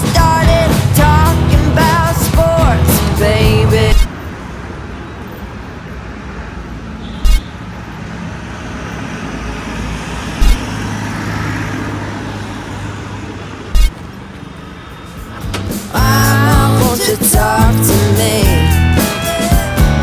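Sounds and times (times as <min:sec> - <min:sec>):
loud thumps: 0:00.0 - 0:04.1, 0:10.4 - 0:10.7, 0:13.7 - 0:14.0
motorcycle engine hum: 0:00.0 - 0:04.2
road and wind noise: 0:00.0 - 0:20.0.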